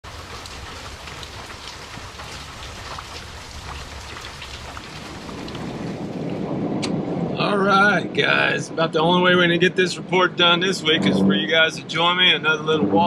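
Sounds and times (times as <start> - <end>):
rain on leaves and patio: 0.0 - 8.6
low rumble: 4.8 - 8.8.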